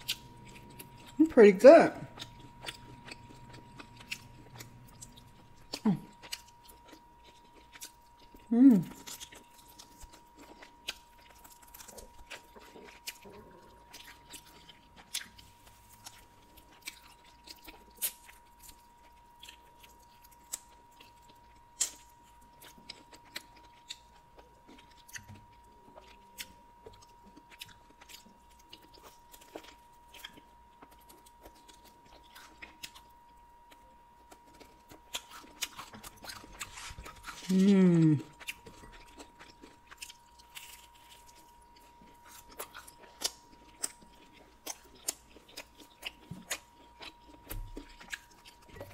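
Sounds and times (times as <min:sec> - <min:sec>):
close chewing and crunching: 0:00.0 - 0:48.9
person humming mm: 0:08.5 - 0:09.0, 0:37.4 - 0:38.4.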